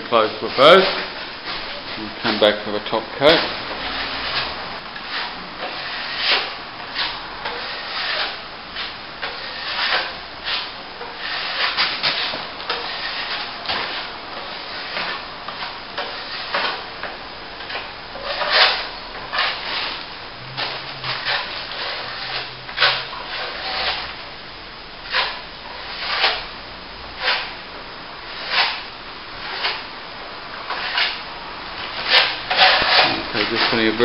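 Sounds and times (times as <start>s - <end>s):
trowel scraping plaster compound: 2.3s - 16.8s, 17.6s - 24.2s, 25.1s - 26.5s, 27.2s - 27.5s, 28.3s - 29.8s, 30.7s - 31.2s, 31.8s - 34.0s.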